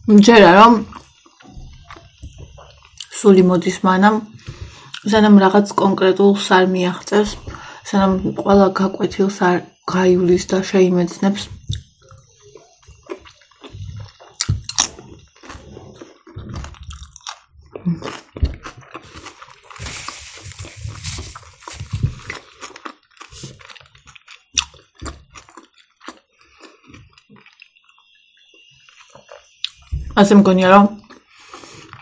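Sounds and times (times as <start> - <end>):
chewing and biting food: 0.9 - 3.2, 11.6 - 30.0, 31.0 - 32.0
rustling: 18.9 - 22.6.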